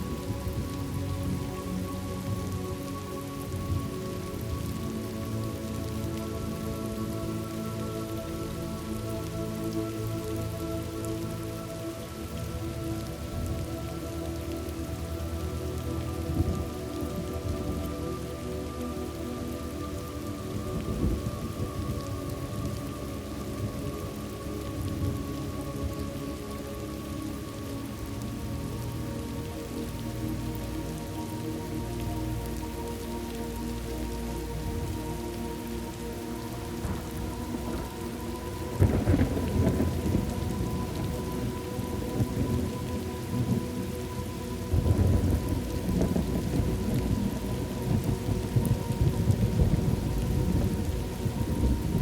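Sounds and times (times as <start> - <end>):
soft background music: 0.0 - 52.0
steady rain: 0.0 - 52.0
thunder rumbling: 36.7 - 43.9, 44.6 - 52.0.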